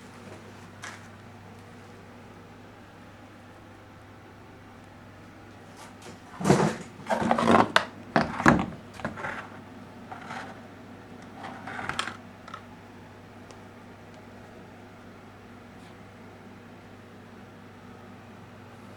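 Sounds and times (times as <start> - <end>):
hard objects knocking and scraping: 6.4 - 10.6, 11.2 - 12.6.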